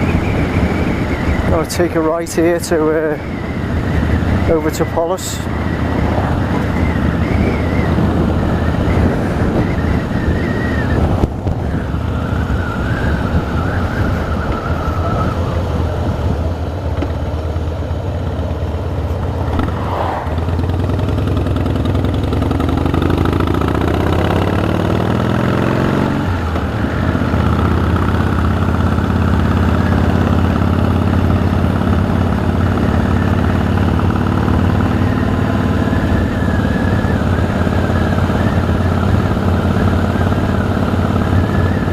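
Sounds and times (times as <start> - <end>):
motorcycle engine accelerating: 2.4 - 41.9.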